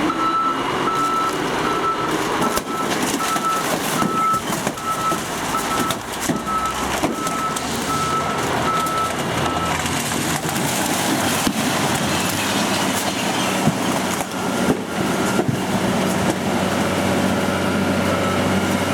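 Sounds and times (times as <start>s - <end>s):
truck reversing alarm beeps: 0.0s - 9.9s, 17.3s - 18.9s
truck engine running: 0.0s - 18.9s.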